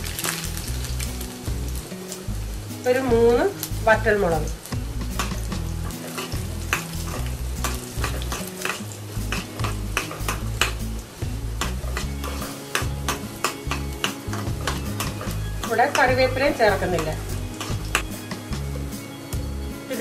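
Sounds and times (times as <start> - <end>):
spices sizzling in hot oil: 0.0 - 20.0
metal spoon scraping pan: 5.1 - 10.9, 11.6 - 18.4.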